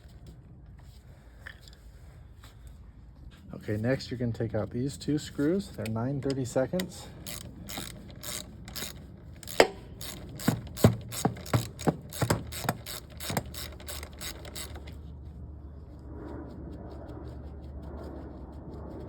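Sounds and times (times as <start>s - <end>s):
socket ratchet clicking: 5.8s - 15.0s.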